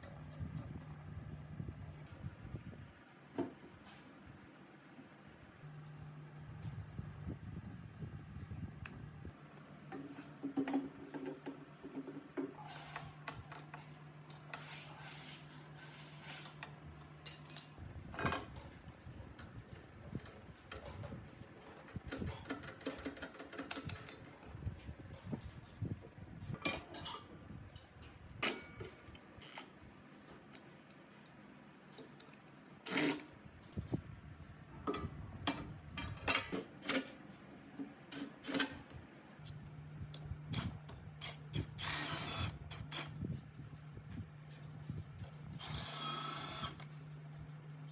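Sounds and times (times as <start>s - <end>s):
steady low hum: 0.0s - 10.5s
metal tools clinking: 17.2s - 17.8s.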